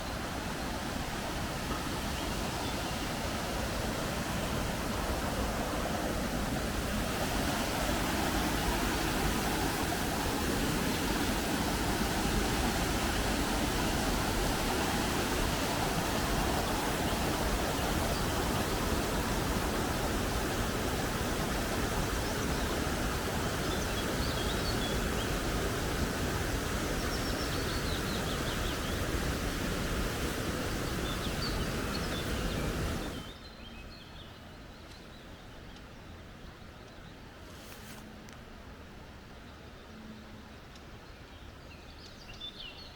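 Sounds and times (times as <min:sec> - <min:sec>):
creek water rushing: 0:00.0 - 0:33.4.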